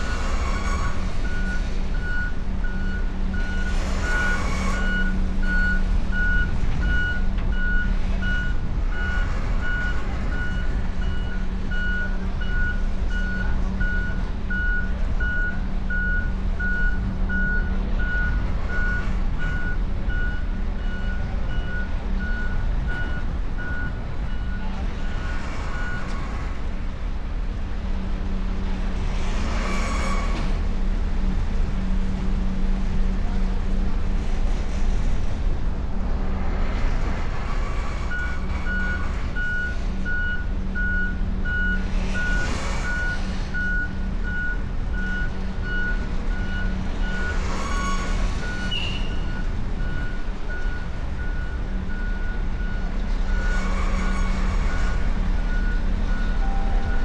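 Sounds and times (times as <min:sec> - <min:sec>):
truck reversing alarm beeping: 0:00.0 - 0:26.4, 0:38.0 - 0:57.0
diesel engine hum: 0:00.0 - 0:57.0.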